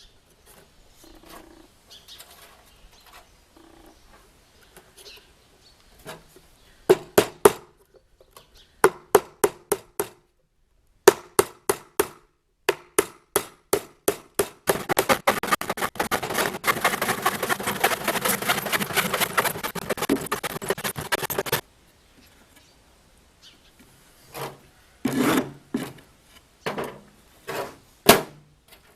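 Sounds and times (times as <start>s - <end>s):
hammer driving nails into wood: 11.1s - 19.5s.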